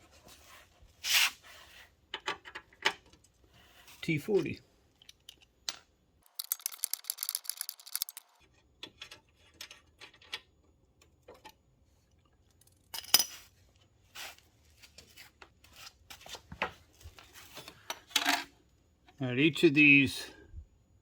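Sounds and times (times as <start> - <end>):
metal tools clinking: 5.0 - 8.4
rapid ratchet clicking: 6.3 - 8.3.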